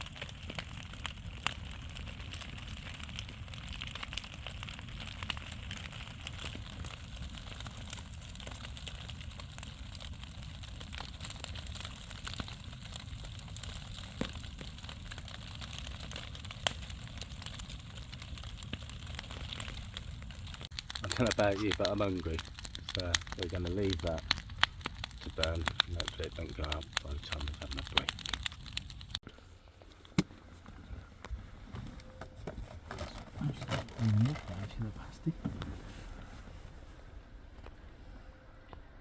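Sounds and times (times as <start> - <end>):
sharp fire pops: 0.0 - 29.2
bonfire crackling: 0.0 - 38.9.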